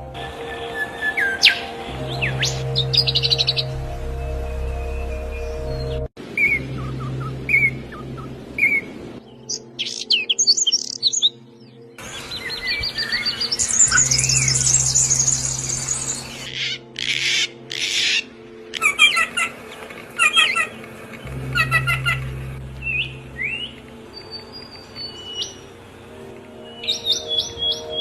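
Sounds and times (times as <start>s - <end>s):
low steady hum: 0.0s - 9.8s, 13.2s - 16.5s, 19.4s - 28.0s
songbirds chirping: 0.0s - 28.0s
harsh rasping bird calls: 12.0s - 28.0s.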